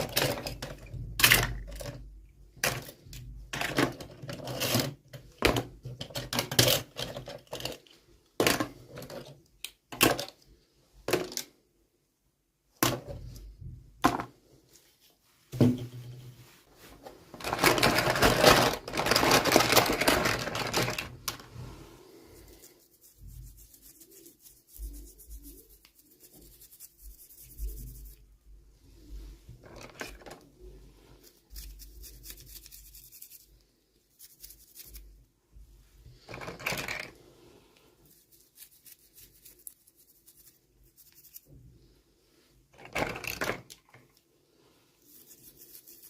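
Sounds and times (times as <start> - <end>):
packaging rustling: 17.3 - 21.4.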